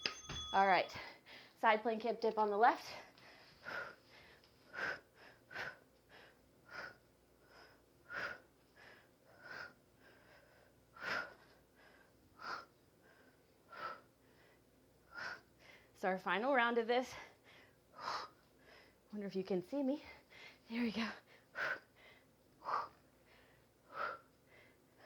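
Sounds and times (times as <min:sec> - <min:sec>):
woman breathing hard: 0:02.8 - 0:16.0, 0:17.1 - 0:19.1, 0:20.1 - 0:25.0.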